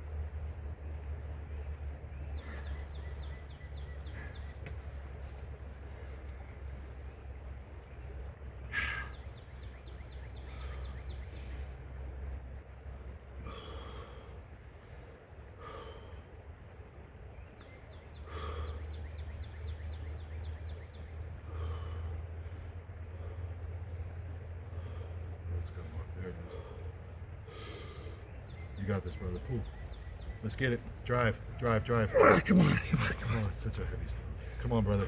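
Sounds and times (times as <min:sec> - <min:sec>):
steady low rumble: 0:00.0 - 0:35.0
man's heavy breaths: 0:08.6 - 0:09.3, 0:10.1 - 0:12.4, 0:13.3 - 0:16.4, 0:18.1 - 0:19.1, 0:21.2 - 0:25.5, 0:26.4 - 0:28.8.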